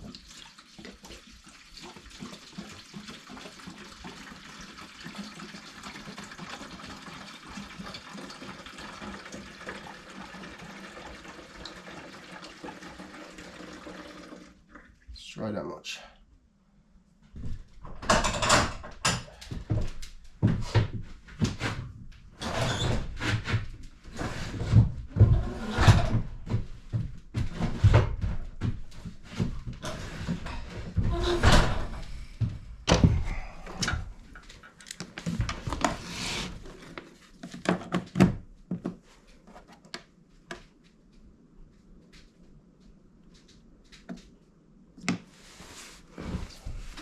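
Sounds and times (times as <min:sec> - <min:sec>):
hard objects knocking and thumping: 0:32.9 - 0:33.5.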